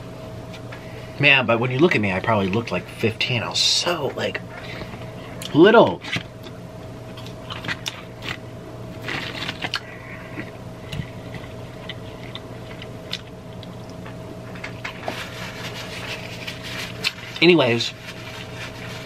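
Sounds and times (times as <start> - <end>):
person chewing crunchy food: 7.1 - 8.4, 9.0 - 15.1.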